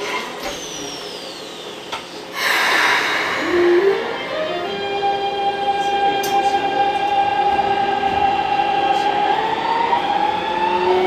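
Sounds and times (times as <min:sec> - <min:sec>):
train motor whine: 0:00.0 - 0:11.0
train inverter musical scale: 0:02.4 - 0:11.0.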